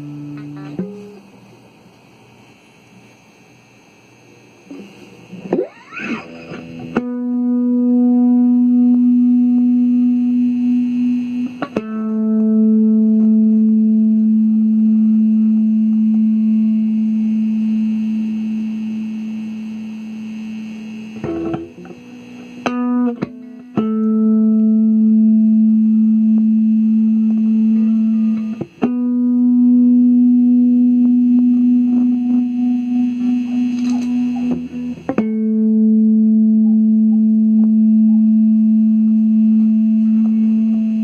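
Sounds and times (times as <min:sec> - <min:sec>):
electric guitar notes: 0:00.0 - 0:01.7, 0:04.6 - 0:41.0.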